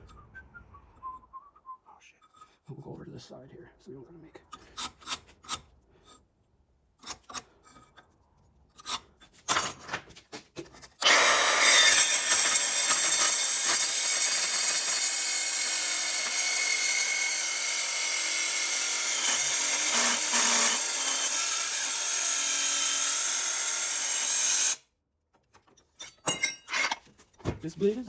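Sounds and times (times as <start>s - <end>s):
power saw cutting metal: 11.0s - 24.8s.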